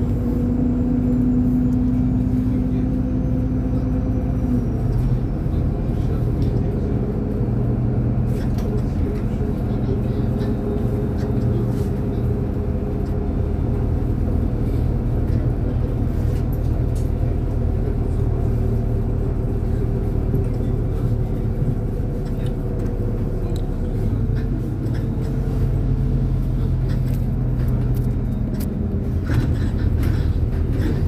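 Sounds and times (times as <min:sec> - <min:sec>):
bus engine drone: 0:00.0 - 0:31.0
rattles of bus body: 0:00.0 - 0:31.0
road rumble: 0:00.0 - 0:31.0.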